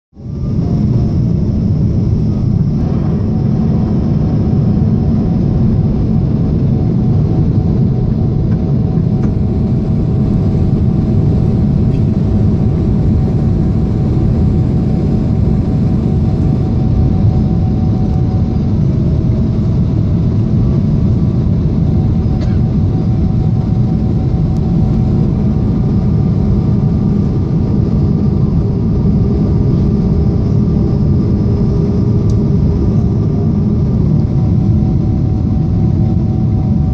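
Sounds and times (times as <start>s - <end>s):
airplane cabin rumble: 0.2s - 36.9s
faint steady hums: 0.2s - 36.9s.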